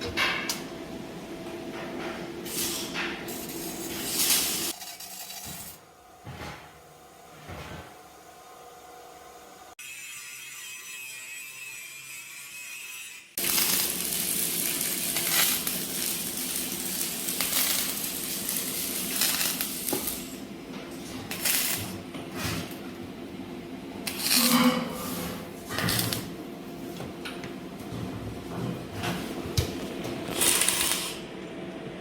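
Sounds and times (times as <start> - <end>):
steady machine hum: 13.4 - 32.0.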